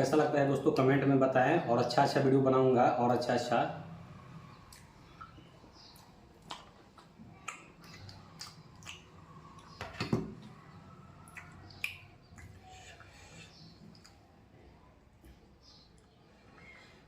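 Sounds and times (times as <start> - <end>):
person chewing with lip smacks: 6.0 - 9.8, 11.2 - 14.3
sharp wet mouth clicks: 6.0 - 9.8, 11.2 - 12.7.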